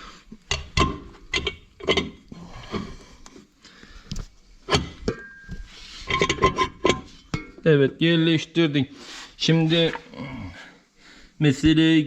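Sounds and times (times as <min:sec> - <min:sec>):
metal cover knocking and clinking: 0:00.5 - 0:02.2, 0:04.7 - 0:07.6.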